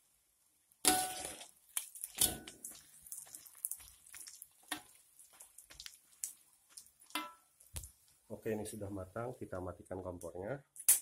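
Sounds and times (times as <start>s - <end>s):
omelette sizzling in hot oil: 0.0s - 8.4s
spatula scraping and tapping pan: 0.9s - 7.9s.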